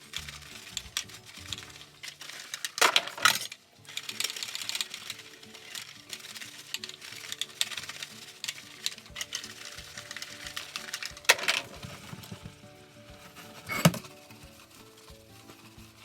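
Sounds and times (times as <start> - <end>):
dishes and utensils clinking: 0.0 - 15.1
soft background music: 0.0 - 16.0
dishes clattering: 13.2 - 14.2.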